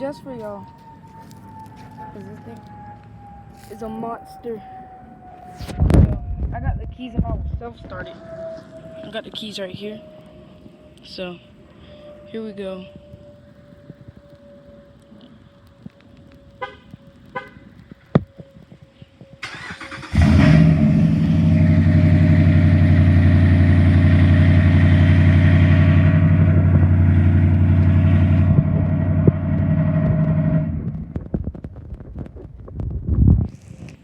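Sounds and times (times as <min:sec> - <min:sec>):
pickup engine cranking and idling: 0:19.4 - 0:31.3.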